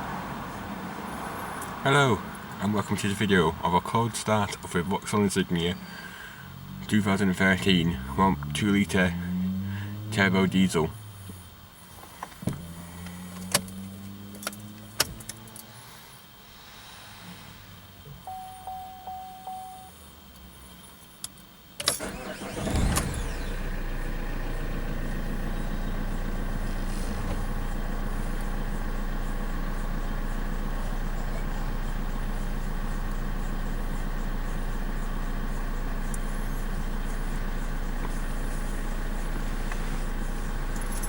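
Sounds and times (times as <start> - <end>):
short beeps: 18.2 - 19.9
diesel engine idling: 22.0 - 41.0.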